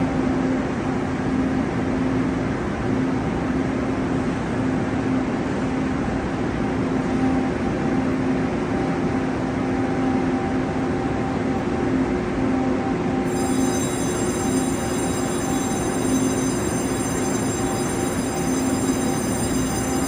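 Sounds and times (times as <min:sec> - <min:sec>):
high whine: 0:13.2 - 0:20.0.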